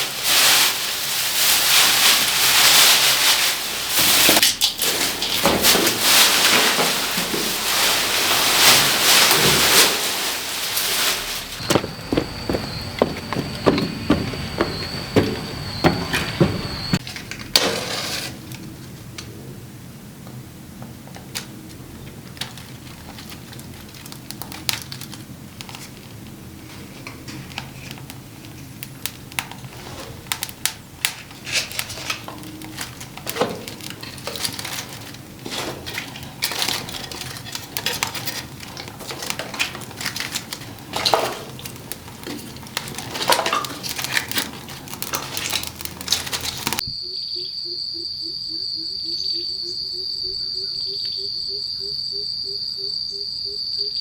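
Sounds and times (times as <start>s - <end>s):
crickets trilling: 10.6s - 17.0s, 27.6s - 54.0s
clicks and clatter of handling: 26.8s - 46.8s.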